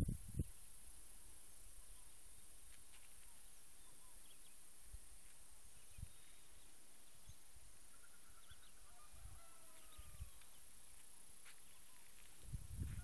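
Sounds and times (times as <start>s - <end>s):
steady hiss: 0.0s - 7.9s
bird calls: 3.2s - 4.7s, 5.7s - 12.5s.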